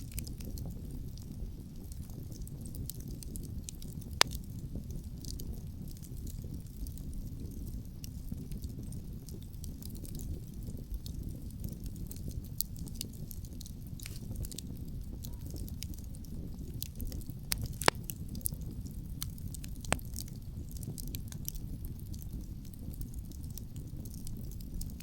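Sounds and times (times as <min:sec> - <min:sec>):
low rumble of wind: 0:00.0 - 0:25.0
wood fire crackling and popping: 0:00.0 - 0:25.0.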